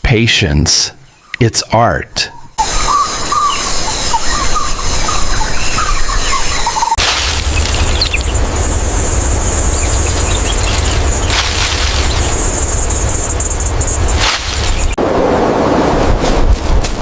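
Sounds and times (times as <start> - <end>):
birds chirping: 0.0 - 15.0
steady high buzz: 7.0 - 15.0
steady high hiss: 7.0 - 15.0
low rumble: 7.0 - 17.0.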